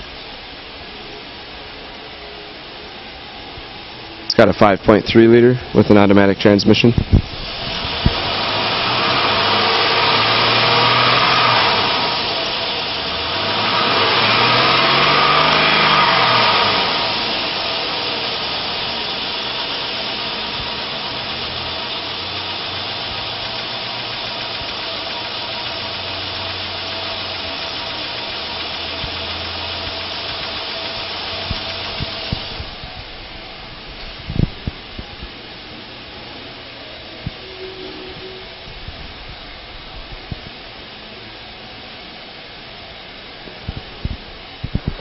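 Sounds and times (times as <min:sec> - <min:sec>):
engine revving: 0:07.4 - 0:32.8.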